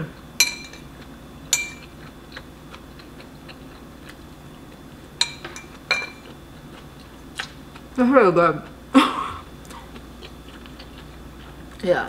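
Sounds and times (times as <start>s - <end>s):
utensil clinking on ceramic plate: 0.4s - 0.8s, 1.5s - 1.9s, 5.2s - 6.2s.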